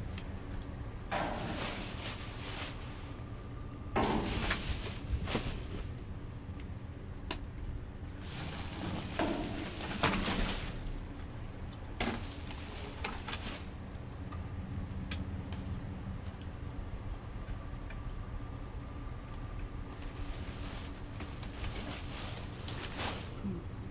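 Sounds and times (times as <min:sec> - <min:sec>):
rustling and crinkling: 0:00.0 - 0:06.1, 0:08.1 - 0:14.0, 0:19.9 - 0:23.6
steady low hum: 0:00.0 - 0:23.9.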